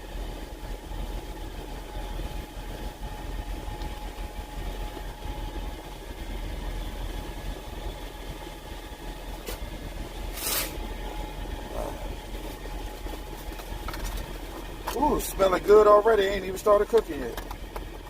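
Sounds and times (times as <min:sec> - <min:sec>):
truck engine idling: 0:00.0 - 0:18.0
short hissing rustle: 0:10.3 - 0:10.8.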